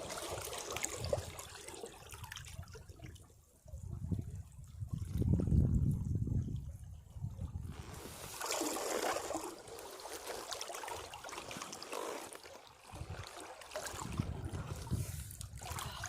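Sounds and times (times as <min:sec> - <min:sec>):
foaming water trickling off rocks: 0:07.7 - 0:14.0.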